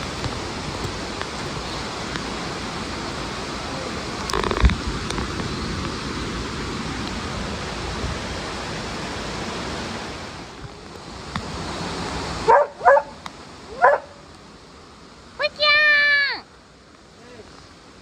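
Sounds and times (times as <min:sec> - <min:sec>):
stream water rushing: 0:00.0 - 0:18.0
dog barking: 0:12.5 - 0:14.2.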